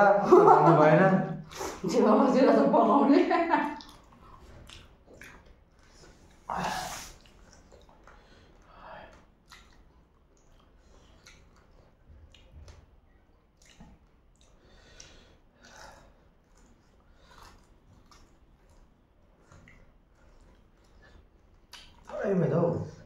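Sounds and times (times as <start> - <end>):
wet chewing and sucking: 3.8 - 22.2.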